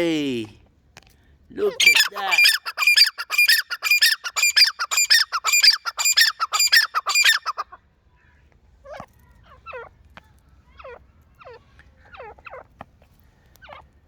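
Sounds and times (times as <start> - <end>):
fowl squawking: 1.6 - 7.6.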